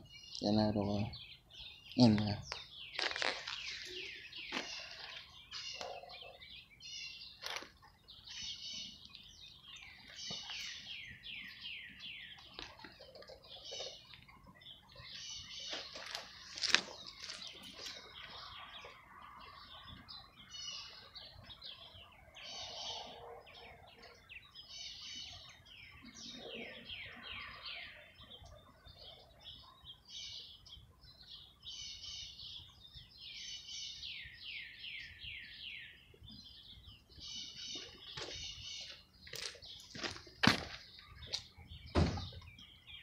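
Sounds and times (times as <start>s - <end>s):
songbirds chirping and singing: 0.0s - 43.0s.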